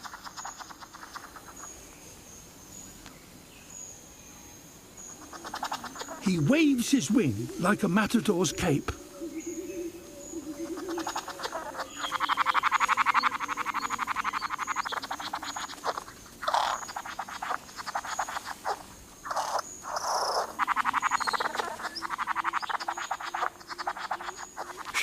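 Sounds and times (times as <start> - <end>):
rattling animal calls: 0.0 - 1.7, 5.2 - 8.8, 10.6 - 25.0.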